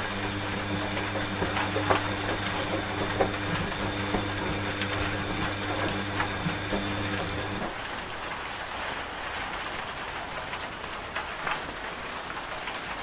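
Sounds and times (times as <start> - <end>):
washing machine motor hum: 0.0 - 8.2.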